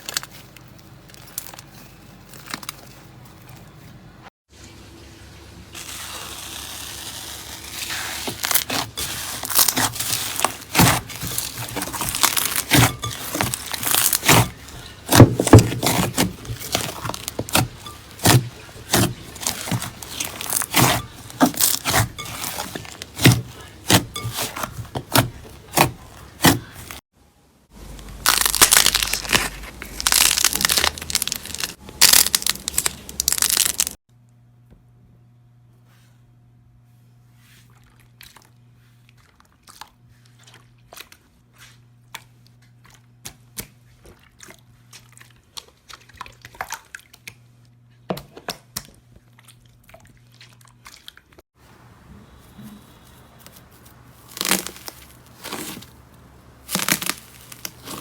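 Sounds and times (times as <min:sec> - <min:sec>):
slime crackling and popping: 0:06.8 - 0:24.5, 0:28.0 - 0:34.0, 0:54.2 - 0:55.9, 0:56.6 - 0:58.0.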